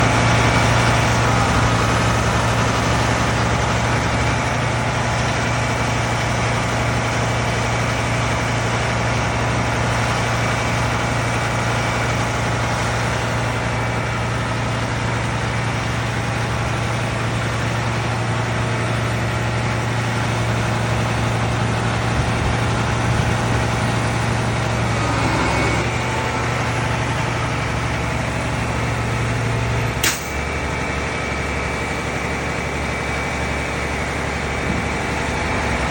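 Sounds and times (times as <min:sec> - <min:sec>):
diesel engine idling: 0:00.0 - 0:35.9.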